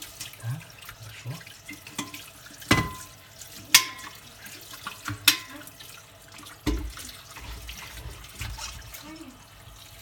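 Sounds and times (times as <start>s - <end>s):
tap water splashing on kettle: 0.0s - 9.0s.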